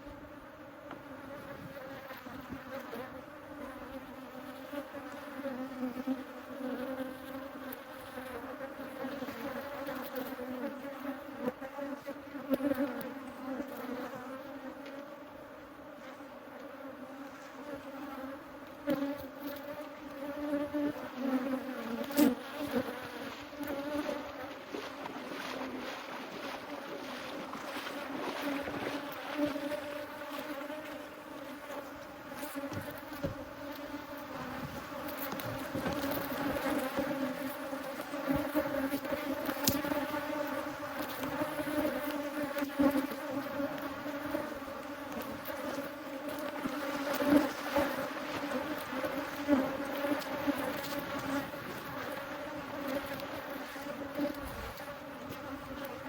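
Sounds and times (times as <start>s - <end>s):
honeybees buzzing: 0.0s - 56.0s.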